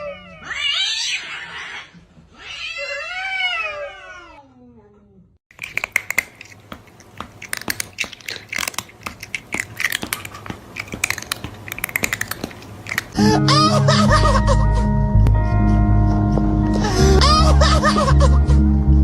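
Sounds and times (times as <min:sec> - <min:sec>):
crunching and crackling: 0:05.5 - 0:13.4.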